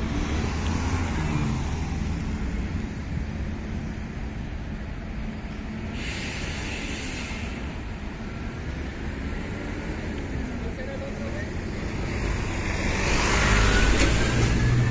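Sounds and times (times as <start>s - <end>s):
street traffic: 0.0s - 14.9s
train rumbling along tracks: 0.0s - 14.9s
brief hiss: 5.9s - 7.7s.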